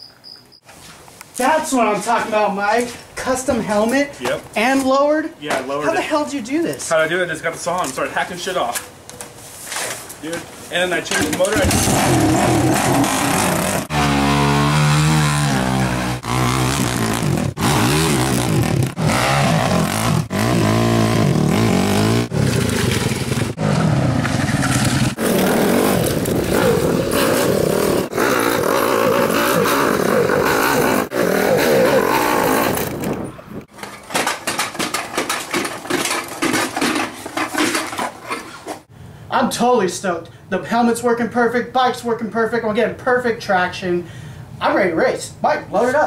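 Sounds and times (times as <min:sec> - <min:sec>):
dirt bike engine revving: 0:11.5 - 0:33.2
scattered clicks and knocks: 0:32.8 - 0:38.5.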